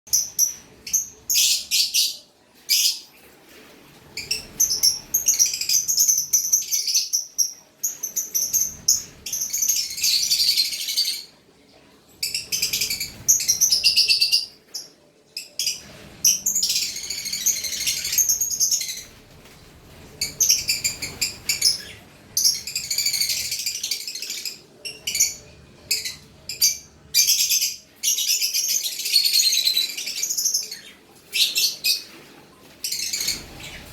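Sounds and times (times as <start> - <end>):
lovebirds chirping: 20.0 - 32.2, 32.8 - 33.9.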